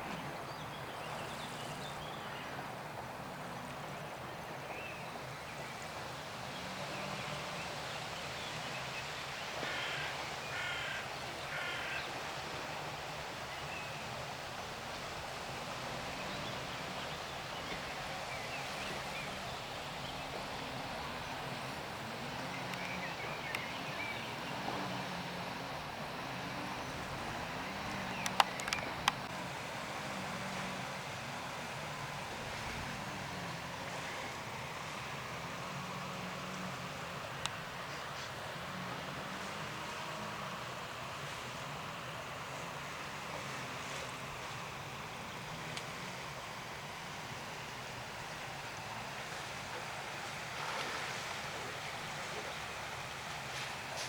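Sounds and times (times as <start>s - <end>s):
sea washing at the shore: 0.0s - 54.0s
birds calling: 9.5s - 12.2s
sharp clicks: 28.2s - 29.2s.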